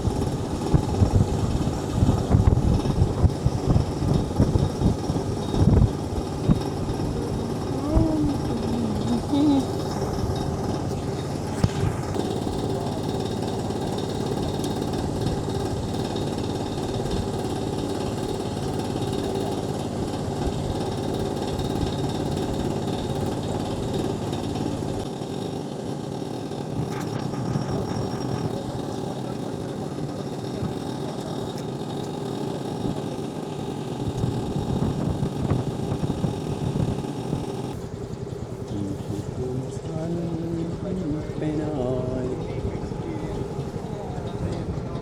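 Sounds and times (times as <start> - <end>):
boat motor running: 0.0 - 45.0.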